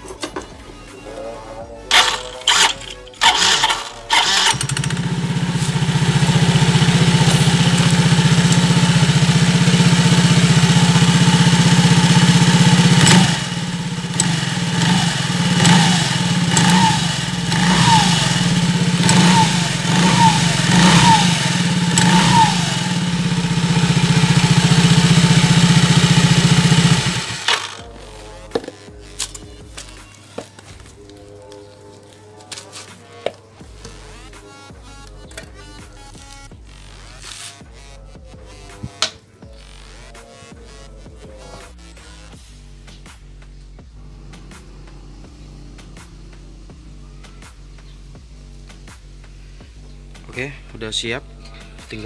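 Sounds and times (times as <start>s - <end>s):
small engine running: 1.9s - 28.0s.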